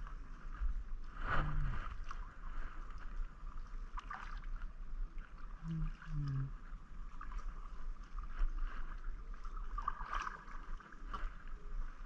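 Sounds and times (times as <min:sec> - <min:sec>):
low microphone rumble: 0:00.0 - 0:03.7, 0:05.4 - 0:09.9
paddle strokes in water: 0:00.0 - 0:12.0
water splashing around kayak: 0:00.0 - 0:12.0
person humming: 0:05.6 - 0:06.6.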